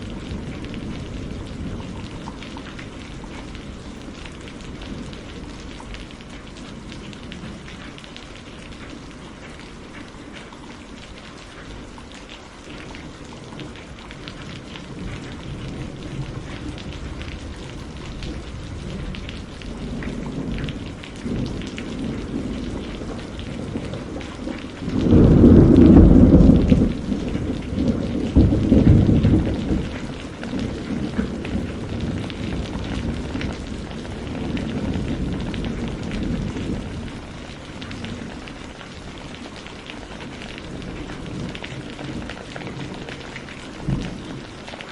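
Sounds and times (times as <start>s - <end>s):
thunder rumble: 0.0s - 10.5s, 12.8s - 44.8s
steady rainfall: 0.0s - 44.9s.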